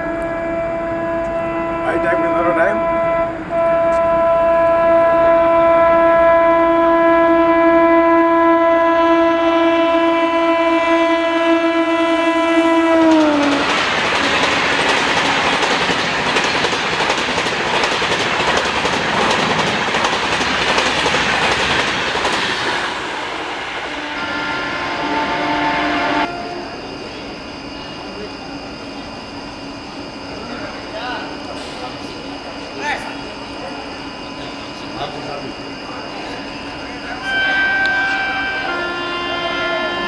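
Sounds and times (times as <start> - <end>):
locomotive horn chord: 0.0 - 13.7, 23.8 - 26.8, 37.2 - 40.0
train rushing roar: 0.0 - 40.0.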